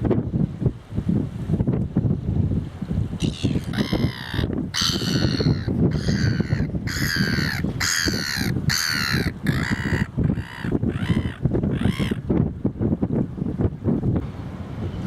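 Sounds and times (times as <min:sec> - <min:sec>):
wind buffeting microphone: 0:00.0 - 0:15.0
birds giving harsh calls: 0:03.2 - 0:12.2.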